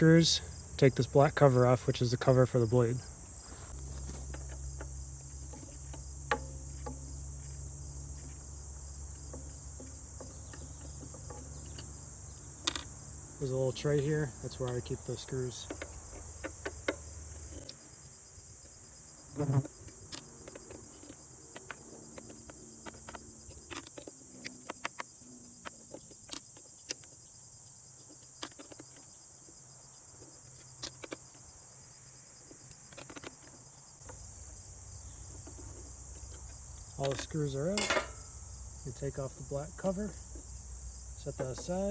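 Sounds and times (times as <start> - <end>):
steady high-pitched hiss: 0.0 - 41.9
screws set in metal tray: 37.2 - 38.3.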